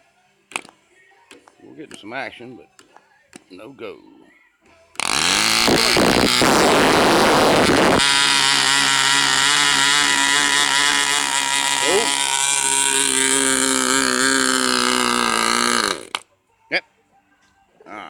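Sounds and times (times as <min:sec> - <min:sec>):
model engine running: 0:05.0 - 0:16.2.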